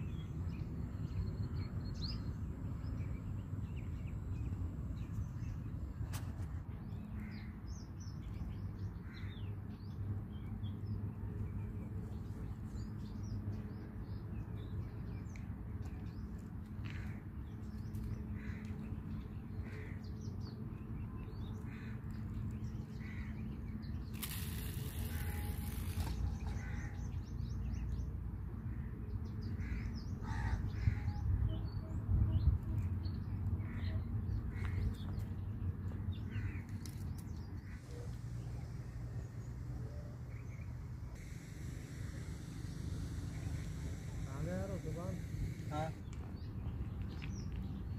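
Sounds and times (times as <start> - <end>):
birds calling: 14.8 - 47.9
steady low rumble: 30.6 - 47.9
hiss: 41.2 - 46.0.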